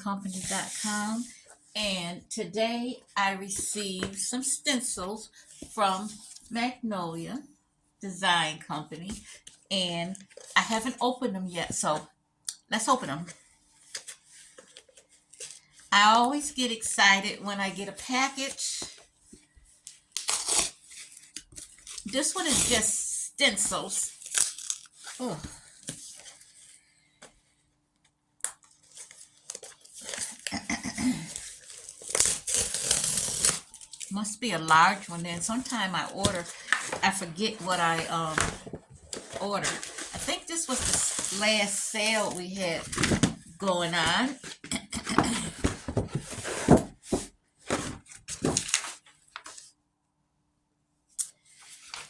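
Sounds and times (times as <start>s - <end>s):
wrapping rustling and tearing: 19.5s - 26.8s, 28.6s - 43.1s
package wrapping rustling: 24.1s - 26.7s, 28.6s - 30.6s, 31.2s - 34.1s.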